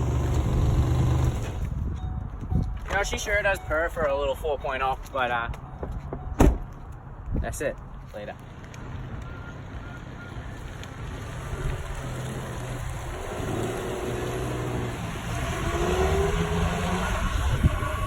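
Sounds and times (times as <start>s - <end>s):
car engine revving: 11.0s - 18.0s.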